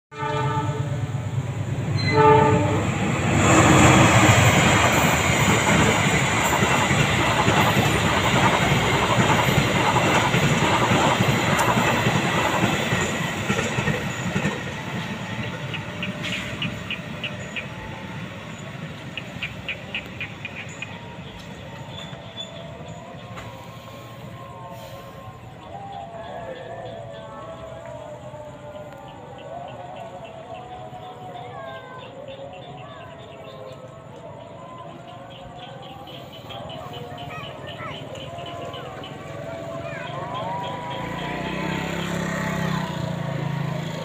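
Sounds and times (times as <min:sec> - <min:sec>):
train horn blasts: 0:00.1 - 0:04.7
train wheels rumbling on rails: 0:00.2 - 0:44.0.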